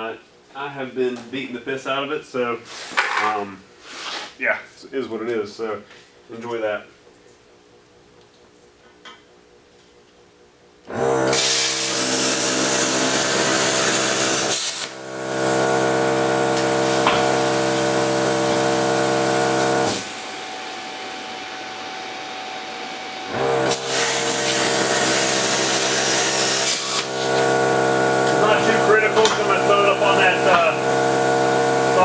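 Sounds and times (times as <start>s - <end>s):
air compressor humming: 10.8s - 32.0s
plasma cutter hissing: 11.3s - 21.2s, 23.6s - 32.0s.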